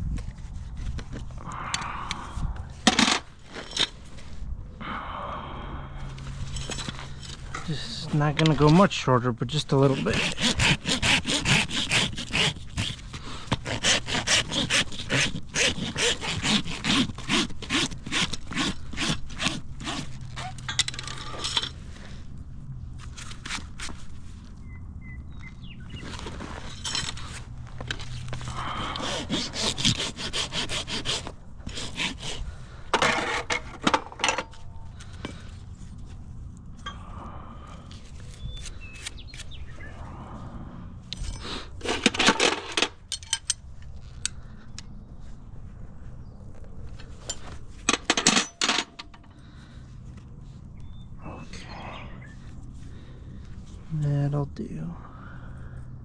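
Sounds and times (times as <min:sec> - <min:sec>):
hoof rasp scraping hoof: 0:06.3 - 0:22.2, 0:23.0 - 0:24.5, 0:25.8 - 0:36.9, 0:41.1 - 0:44.3, 0:46.6 - 0:50.3.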